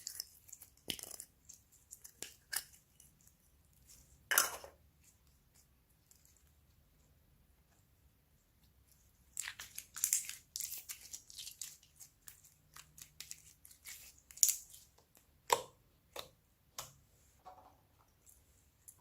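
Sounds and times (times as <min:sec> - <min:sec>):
slime crackling and popping: 0:09.4 - 0:14.8.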